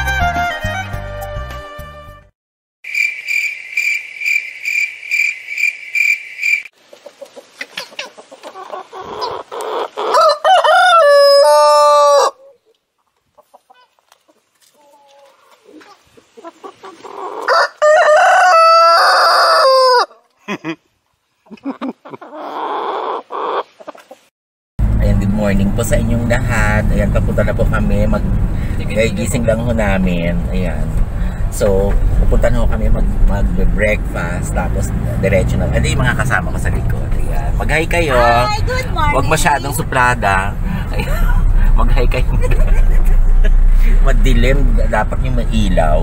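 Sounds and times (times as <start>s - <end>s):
chicken clucking: 6.8s - 20.3s, 21.4s - 24.3s
rooster crowing: 10.0s - 12.5s, 17.4s - 20.2s.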